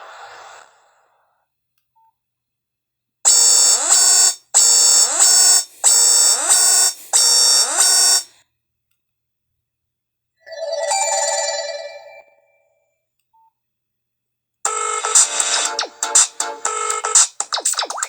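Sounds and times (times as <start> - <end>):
electronic ringtone beeping: 10.5 - 12.7, 14.7 - 17.3.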